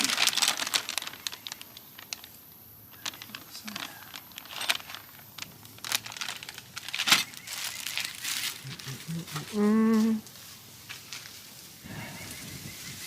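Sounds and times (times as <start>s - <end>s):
packaging crinkling and tearing: 0.0s - 10.3s.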